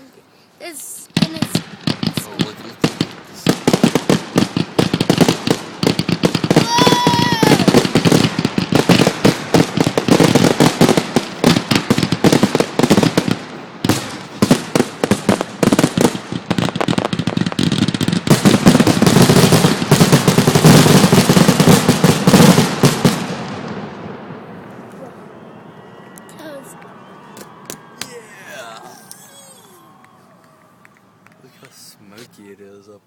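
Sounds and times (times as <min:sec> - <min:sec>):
fireworks bangs and crackles: 0:00.7 - 0:26.1.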